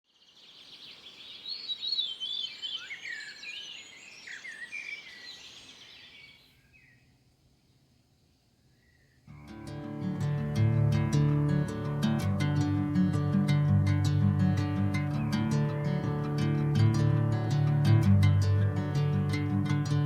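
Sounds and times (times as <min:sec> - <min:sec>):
birds singing: 0:00.1 - 0:07.1, 0:08.7 - 0:09.5, 0:12.6 - 0:20.0.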